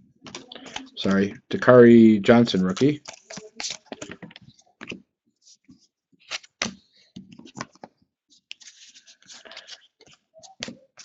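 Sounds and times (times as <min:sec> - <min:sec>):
cards clicking: 0:02.7 - 0:05.0, 0:06.3 - 0:06.7, 0:08.5 - 0:10.8
cards sliding against cards: 0:02.7 - 0:05.0, 0:06.3 - 0:06.7, 0:08.5 - 0:10.8.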